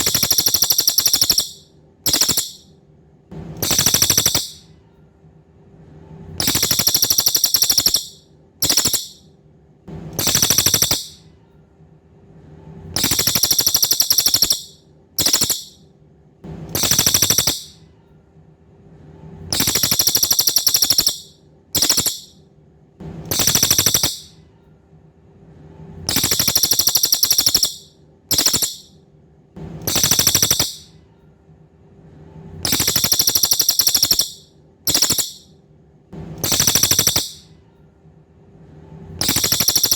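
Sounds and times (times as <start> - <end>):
songbird trilling: 0.0 - 2.6, 3.6 - 4.6, 6.4 - 9.2, 10.2 - 11.2, 13.0 - 15.8, 16.8 - 17.7, 19.6 - 22.3, 23.3 - 24.3, 26.1 - 28.9, 29.9 - 30.8, 32.7 - 35.4, 36.4 - 37.4.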